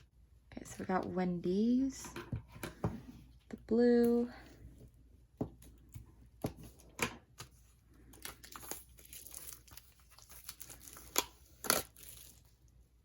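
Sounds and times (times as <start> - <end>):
packaging crinkling and rustling: 7.5 - 12.7.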